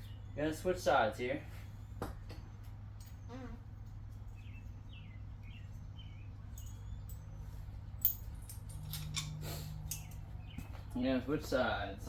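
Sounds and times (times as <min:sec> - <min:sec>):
low steady hum: 0:00.0 - 0:12.0
small bird chirping: 0:03.1 - 0:07.8.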